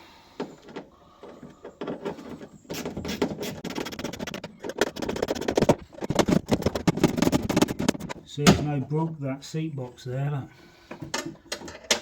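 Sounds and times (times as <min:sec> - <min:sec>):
clicking and clattering on metal: 0:10.9 - 0:12.0.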